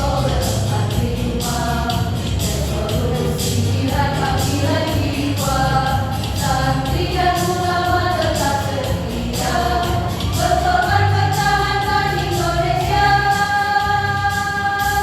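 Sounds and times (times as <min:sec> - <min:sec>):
choir singing a march: 0:05.3 - 0:15.0.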